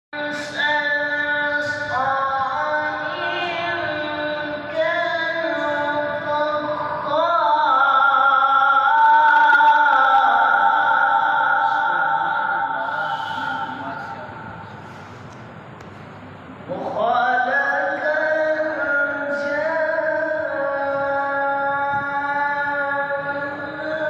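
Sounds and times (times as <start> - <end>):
solo voice chanting melodically: 16.7 - 24.0.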